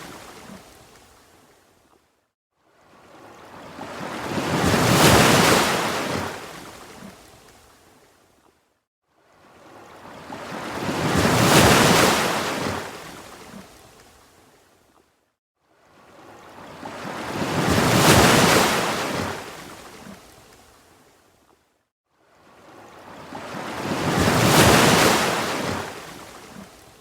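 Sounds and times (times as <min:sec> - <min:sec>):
ocean waves washing: 0:03.5 - 0:06.9, 0:10.0 - 0:13.4, 0:16.5 - 0:20.1, 0:22.7 - 0:26.8.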